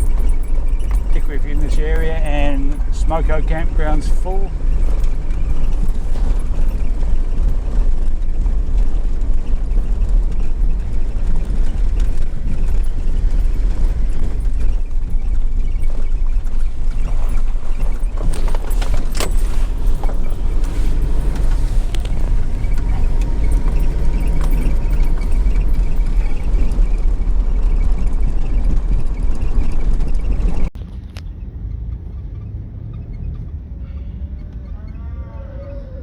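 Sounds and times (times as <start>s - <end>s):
knocks and rattles: 0.0s - 33.7s
engine and road noise rumble: 0.0s - 36.0s
quieter low rumble: 0.0s - 36.0s.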